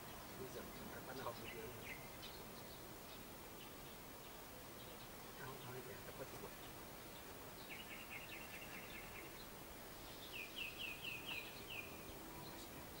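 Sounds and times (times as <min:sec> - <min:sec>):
bird singing trills: 0:00.0 - 0:05.9, 0:06.5 - 0:13.0
outdoor background noise: 0:00.0 - 0:13.0.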